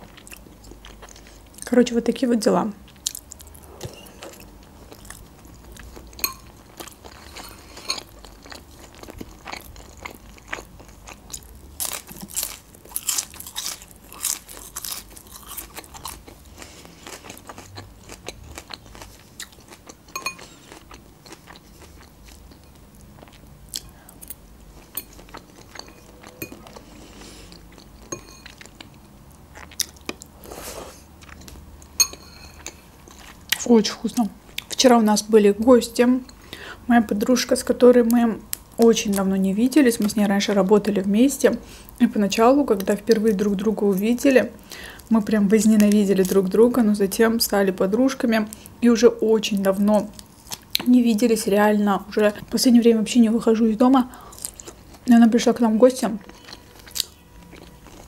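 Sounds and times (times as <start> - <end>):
person chewing crunchy food: 0.0 - 1.7, 2.9 - 33.7, 50.1 - 50.9, 54.1 - 55.1, 56.2 - 58.0.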